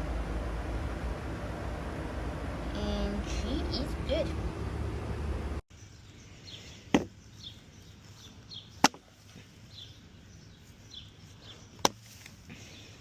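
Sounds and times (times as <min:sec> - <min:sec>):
axe chopping into wood: 0:06.9 - 0:07.1.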